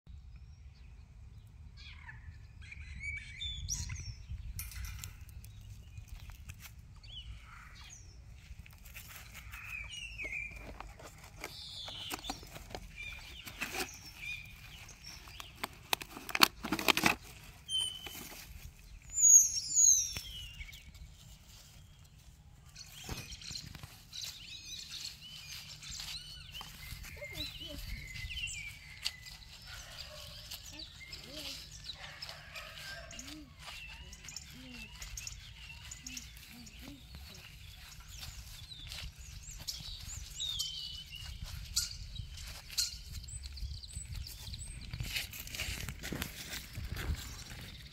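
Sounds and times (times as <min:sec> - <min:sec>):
small birds chirping: 0:00.2 - 0:47.9.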